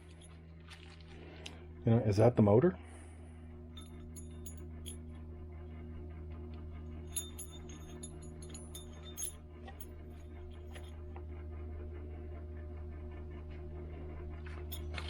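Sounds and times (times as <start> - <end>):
steady low hum: 0.0 - 15.0
metal parts clinking: 3.8 - 5.0, 7.1 - 10.9.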